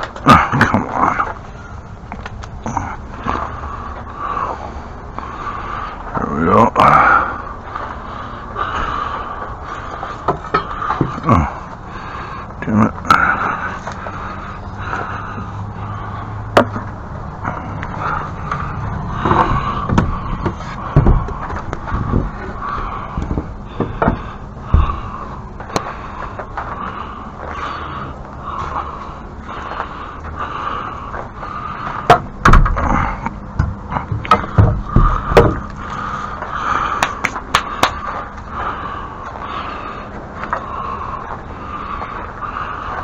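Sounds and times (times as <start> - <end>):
steady low hum: 0.0 - 43.0
heavy thumps: 18.4 - 26.7, 31.8 - 38.1
knocks and clunks of hand work: 19.2 - 22.6, 23.2 - 25.0, 32.0 - 35.7.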